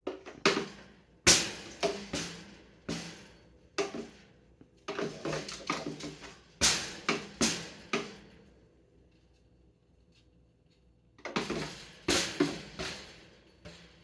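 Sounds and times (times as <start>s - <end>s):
knocks and clanks in a cage: 0.0s - 9.0s, 11.2s - 14.0s.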